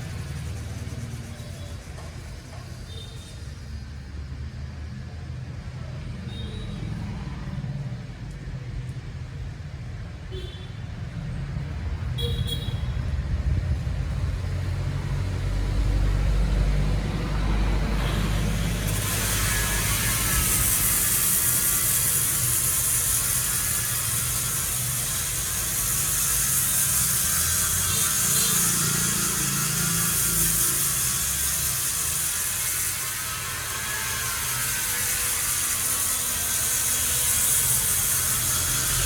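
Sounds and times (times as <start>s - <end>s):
loud hiss: 17.8s - 39.0s.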